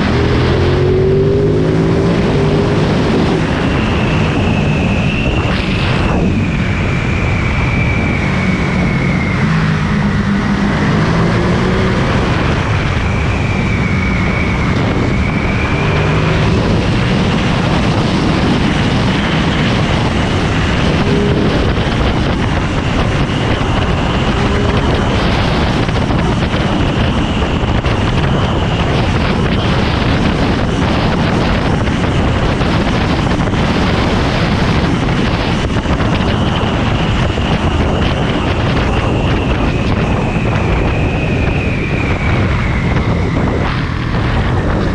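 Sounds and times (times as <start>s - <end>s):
wind noise on microphone: 0.0s - 44.9s
motorcycle engine running: 14.7s - 41.7s.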